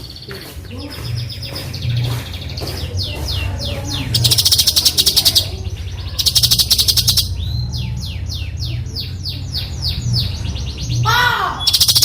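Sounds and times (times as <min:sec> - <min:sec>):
steady low hum: 0:00.0 - 0:12.0
bird giving rasping calls: 0:03.8 - 0:07.4, 0:11.0 - 0:12.0.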